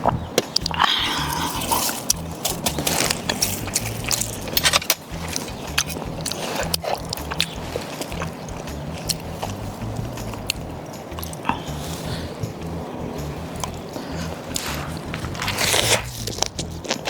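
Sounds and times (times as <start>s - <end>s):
low outdoor rumble: 0.0s - 17.0s
person chewing and crunching: 0.0s - 17.0s
sharp clicks and taps: 2.0s - 11.8s.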